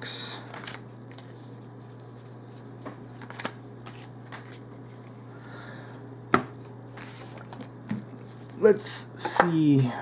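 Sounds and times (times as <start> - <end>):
cards tapping and rustling: 2.8 - 4.6.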